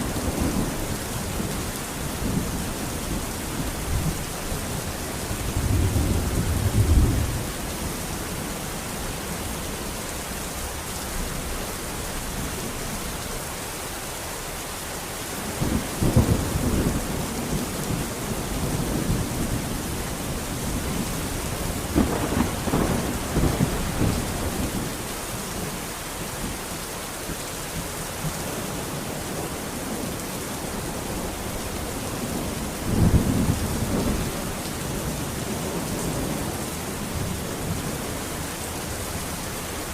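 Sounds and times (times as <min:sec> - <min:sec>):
thunder rumbling: 0:00.0 - 0:08.5, 0:15.4 - 0:25.1, 0:29.0 - 0:39.9
steady rain falling: 0:00.0 - 0:39.9.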